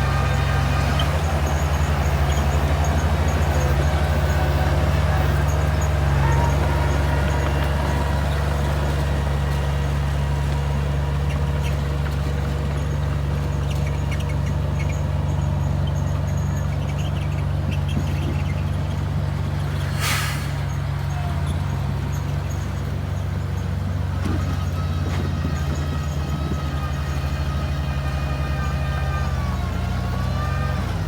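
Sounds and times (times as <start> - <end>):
bulldozer diesel engine running: 0.0 - 31.0
brief hiss: 19.8 - 20.7.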